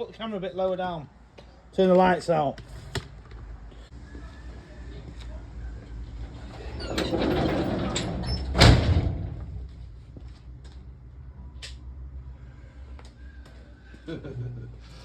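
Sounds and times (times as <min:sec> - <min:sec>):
garage door closing bang: 0:02.6 - 0:03.5, 0:06.3 - 0:09.8
garage door rolling rumble: 0:06.0 - 0:10.2.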